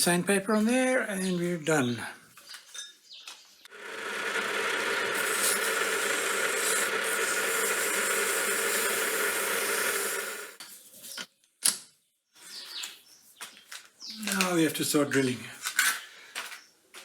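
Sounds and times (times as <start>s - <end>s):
lathe motor hum: 3.7s - 10.6s
sandpaper hissing on workpiece: 3.8s - 10.6s.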